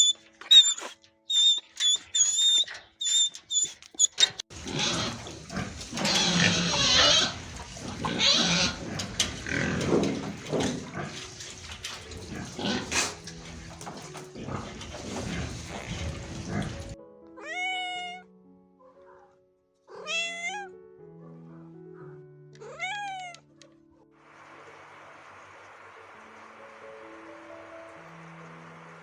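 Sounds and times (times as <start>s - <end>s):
high squeaks: 0.0s - 4.4s
pigs grunting and snuffling: 2.4s - 17.0s.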